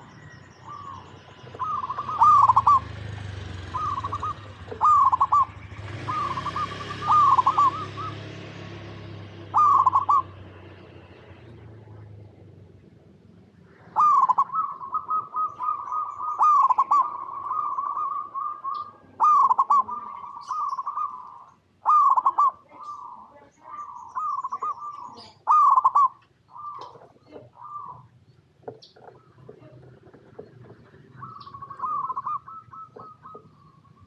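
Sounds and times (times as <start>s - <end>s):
zebra dove cooing: 0.0s - 34.0s.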